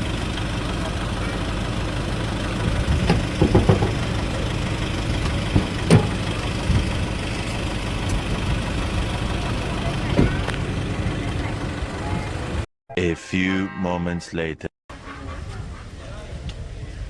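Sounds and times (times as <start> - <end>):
engine running at low revs: 0.0 - 12.7
short knocks: 2.9 - 4.1.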